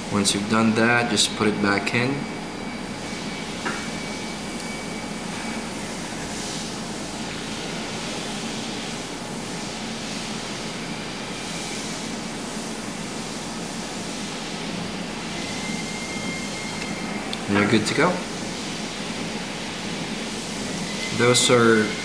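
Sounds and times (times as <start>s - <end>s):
even hiss: 11.4s - 22.0s.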